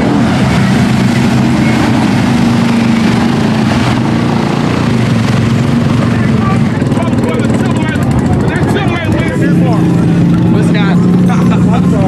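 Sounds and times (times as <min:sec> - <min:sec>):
dense wash of noise: 0:00.0 - 0:12.0
truck engine under heavy load: 0:00.0 - 0:12.0.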